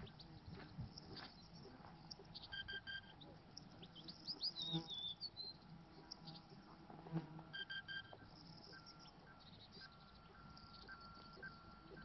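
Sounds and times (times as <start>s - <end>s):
wild birds chirping: 0.0s - 6.9s, 7.5s - 12.0s
short high beeps: 2.5s - 3.2s, 7.6s - 12.0s.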